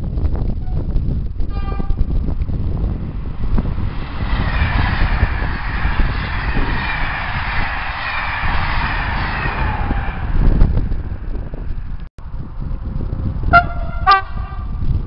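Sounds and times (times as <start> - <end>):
heavy low rumble: 0.0 - 15.0
train passing with rushing noise: 0.4 - 15.0
falling whine: 0.8 - 12.1.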